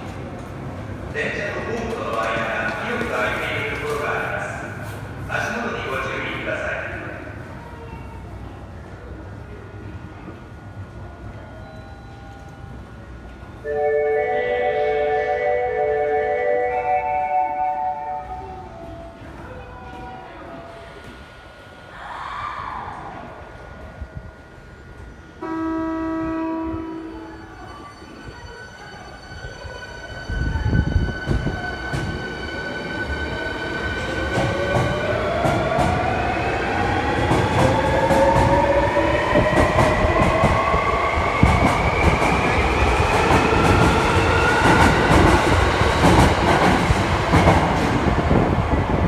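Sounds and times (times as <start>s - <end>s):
train rumble: 18.0s - 49.0s
steady horn tone: 25.4s - 27.0s.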